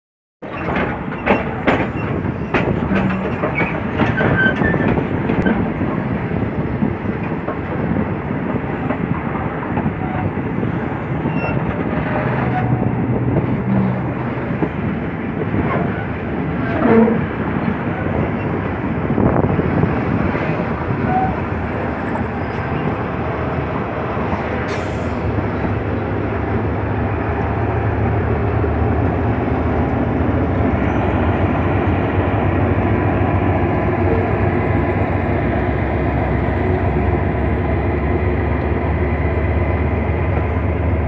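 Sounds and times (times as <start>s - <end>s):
clicks over rail joints: 0.4s - 5.9s
train wheels rumbling on track: 0.4s - 41.0s.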